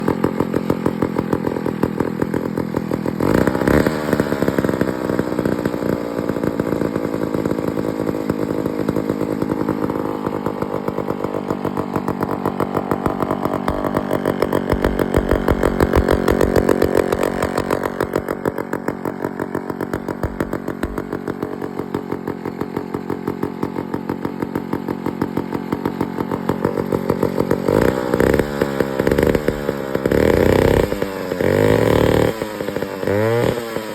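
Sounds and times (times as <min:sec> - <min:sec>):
chainsaw engine running: 0:00.0 - 0:33.9.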